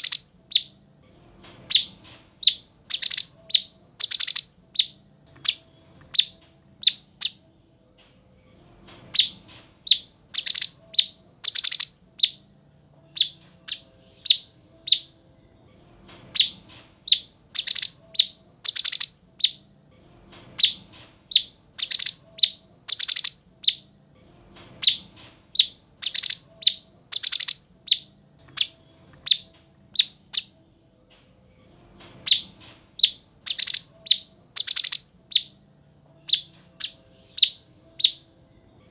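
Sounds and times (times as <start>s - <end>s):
shrill bird chirps: 0.0s - 0.8s, 1.7s - 7.4s, 9.2s - 12.5s, 13.1s - 15.2s, 16.3s - 19.7s, 20.6s - 23.9s, 24.8s - 30.5s, 32.2s - 35.6s, 36.2s - 38.3s.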